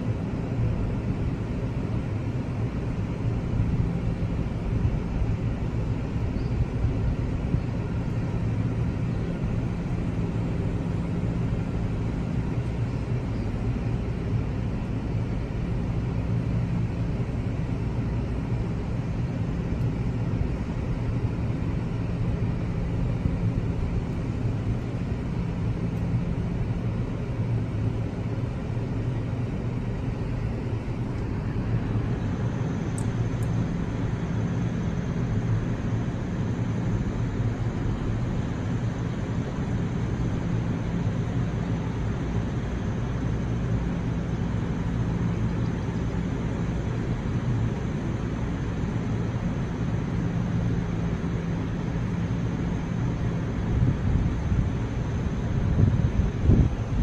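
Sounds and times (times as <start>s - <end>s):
train humming and rumbling: 0.0s - 57.0s.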